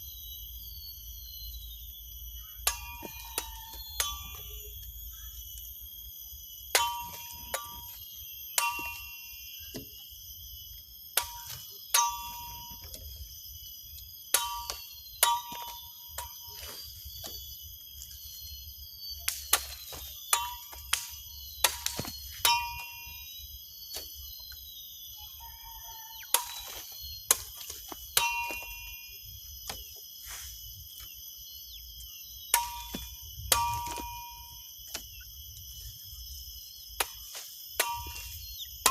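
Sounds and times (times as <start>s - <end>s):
high insect shrilling: 0.0s - 38.9s
machete blows ringing metallically: 2.5s - 5.2s, 6.6s - 9.9s, 11.1s - 13.0s, 14.3s - 17.4s, 19.2s - 24.2s, 26.2s - 29.5s, 32.3s - 34.8s, 37.0s - 38.9s.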